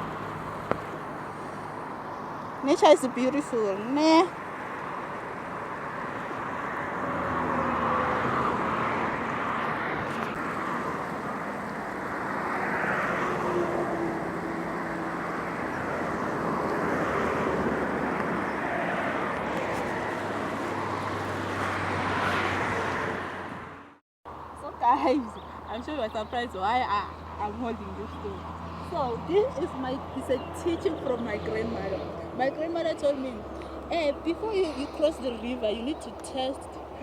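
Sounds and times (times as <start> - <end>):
vehicles passing on freeway: 0.0 - 37.0.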